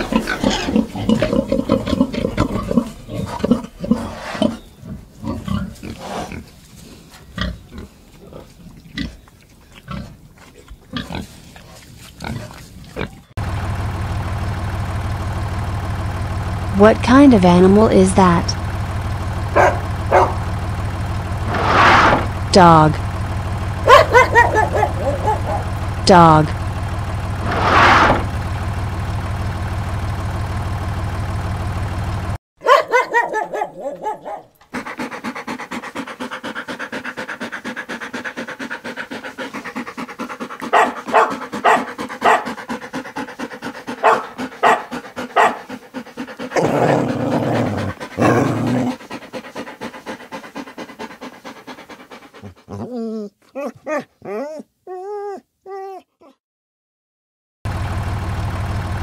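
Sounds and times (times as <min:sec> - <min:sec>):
low engine drone: 0:13.4 - 0:32.4, 0:57.7 - 0:59.0
dog barking: 0:19.5 - 0:20.5, 0:23.8 - 0:25.8, 0:32.6 - 0:34.5, 0:40.7 - 0:42.6, 0:44.0 - 0:45.7
dog whining: 0:23.9 - 0:25.7, 0:52.4 - 0:56.4.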